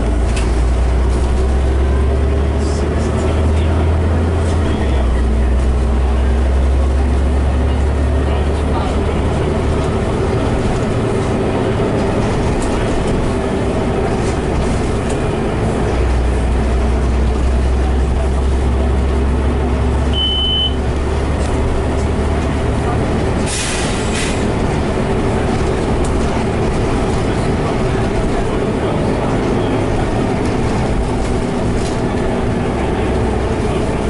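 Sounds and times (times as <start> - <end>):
bus engine hum: 0.0 - 34.0
road noise: 0.0 - 34.0
short high beep: 20.1 - 20.8.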